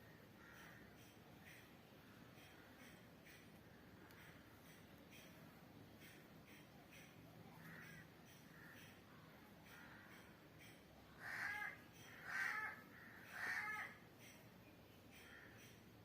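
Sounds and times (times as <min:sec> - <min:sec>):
crow cawing: 0:00.4 - 0:01.6, 0:07.6 - 0:09.0, 0:09.6 - 0:10.4, 0:11.1 - 0:14.0, 0:15.1 - 0:15.8.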